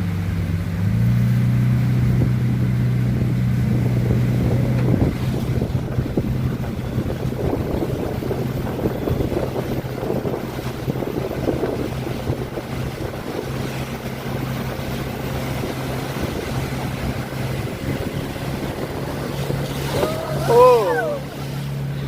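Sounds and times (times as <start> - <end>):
motorboat engine humming: 0.0 - 22.0
water rushing past hull: 0.0 - 22.0
wind buffeting microphone: 1.8 - 22.0.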